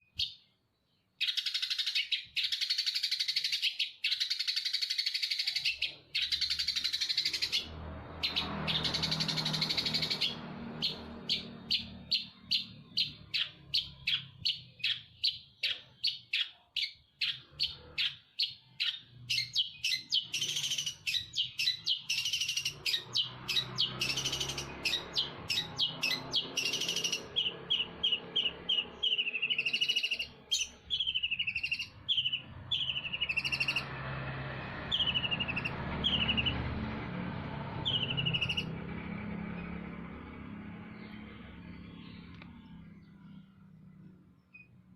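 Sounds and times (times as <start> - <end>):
songbird calls: 0.0 - 33.9, 34.9 - 36.7, 37.8 - 38.7.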